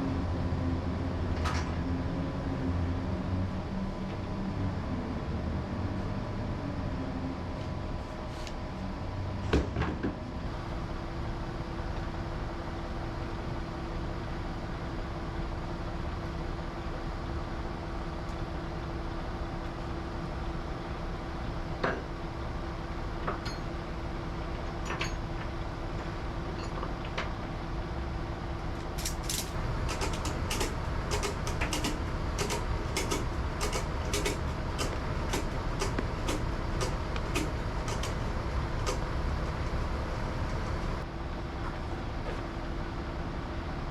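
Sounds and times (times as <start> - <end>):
mechanical hum: 0.0 - 43.9
ratchet strap clicking: 28.9 - 38.2.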